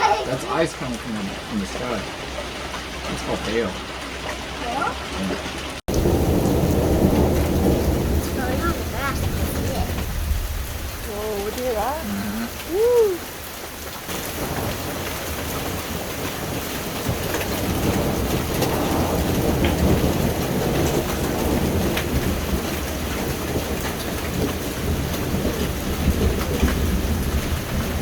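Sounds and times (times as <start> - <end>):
hail and rain falling: 0.0 - 28.0
hailstones ticking: 0.0 - 28.0
deep rumble of thunder: 5.9 - 28.0.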